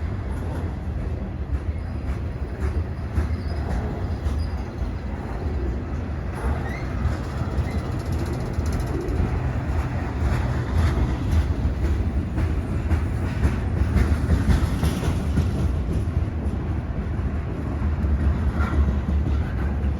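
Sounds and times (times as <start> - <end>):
freight train rumbling past: 0.0 - 19.9
wheels clicking over rail joints: 0.3 - 19.9.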